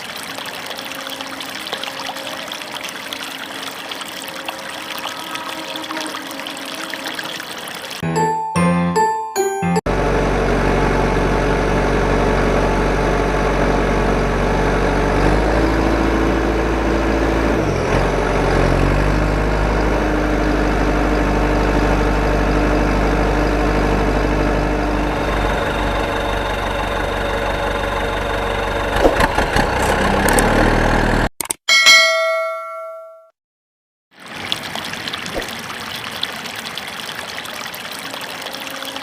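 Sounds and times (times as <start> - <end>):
engine idling: 23.0 - 31.3.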